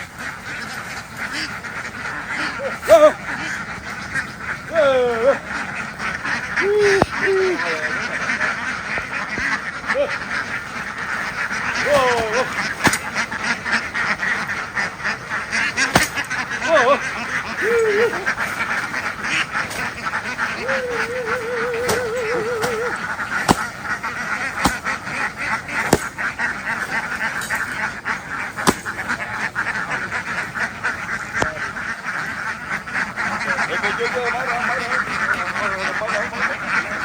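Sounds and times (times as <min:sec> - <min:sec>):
ducks quacking: 0:00.0 - 0:37.0
warbling call: 0:09.5 - 0:26.3
sharp knocks: 0:11.9 - 0:13.1, 0:15.9 - 0:16.2, 0:23.5 - 0:23.8, 0:25.9 - 0:26.2.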